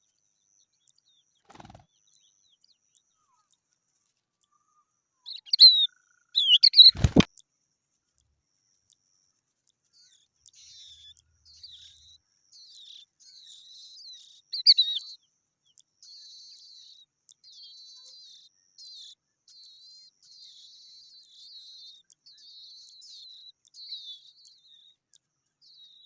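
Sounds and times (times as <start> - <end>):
bird twittering: 1.4 - 3.6, 4.4 - 7.3, 10.0 - 25.0.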